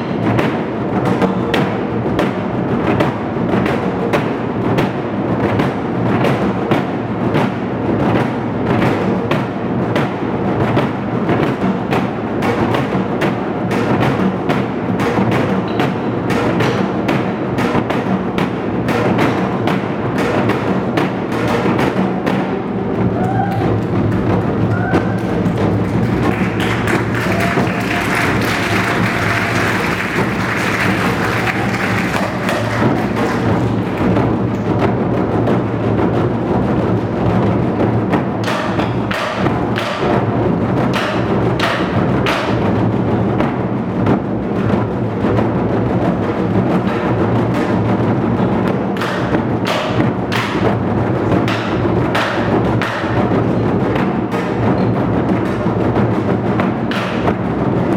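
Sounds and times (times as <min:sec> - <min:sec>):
barrel drums in fast rhythm: 0:00.0 - 0:57.9.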